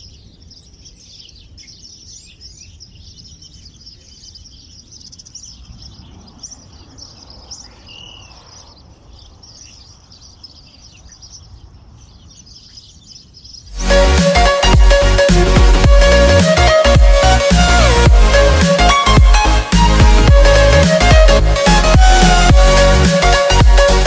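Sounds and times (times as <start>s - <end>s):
songbirds chirping and trilling: 0.0s - 24.0s
whistled bird note: 5.3s - 8.8s.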